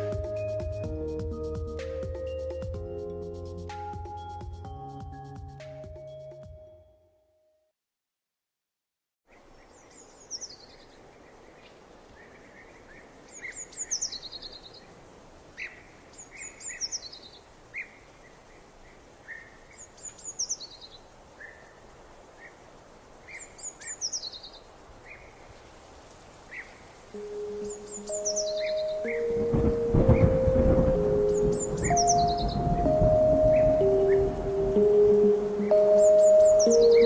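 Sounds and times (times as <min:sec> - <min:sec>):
songbird singing: 0:00.0 - 0:07.0, 0:09.3 - 0:37.0
soft bird chirps: 0:09.3 - 0:25.7, 0:26.5 - 0:37.0
steady background hiss: 0:09.3 - 0:37.0.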